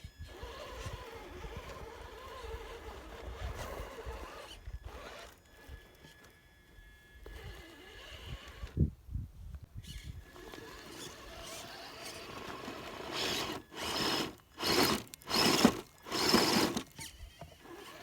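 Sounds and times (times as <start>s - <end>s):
electric motor whining: 0.0s - 8.9s, 9.8s - 18.0s
tyres churning mud: 10.9s - 16.9s.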